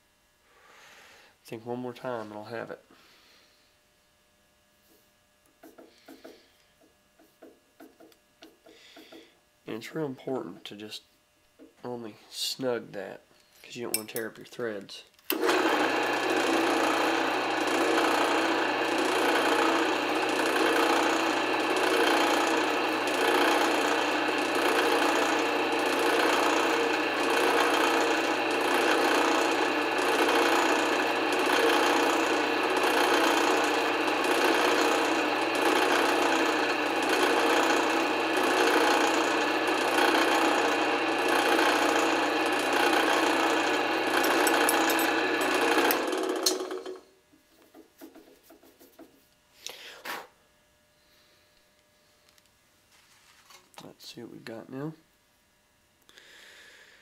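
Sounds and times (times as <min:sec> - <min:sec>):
drill press running: 0:15.3 - 0:47.1
rasp scraping spinning screw: 0:16.2 - 0:47.0.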